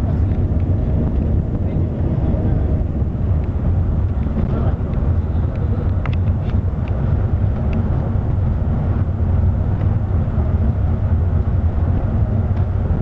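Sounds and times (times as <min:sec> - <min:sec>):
bus engine rumbling: 0:00.0 - 0:13.0
road noise: 0:00.0 - 0:13.0
faint light ticks: 0:04.9 - 0:07.0.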